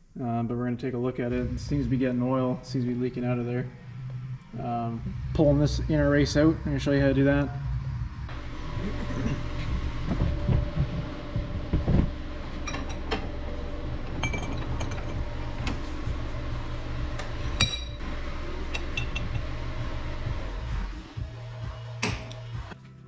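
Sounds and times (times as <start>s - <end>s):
steady low hum: 0.0s - 22.8s
ringing metallic clinks: 14.2s - 15.2s, 17.6s - 18.0s.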